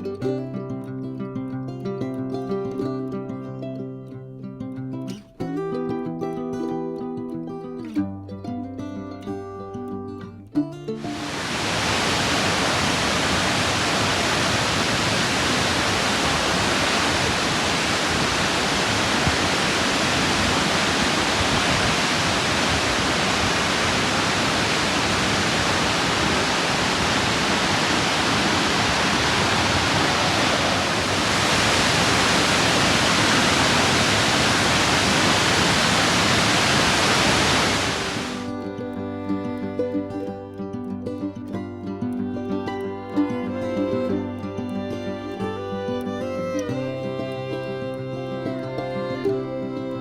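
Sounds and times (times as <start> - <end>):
waterfall pouring: 11.1 - 38.5.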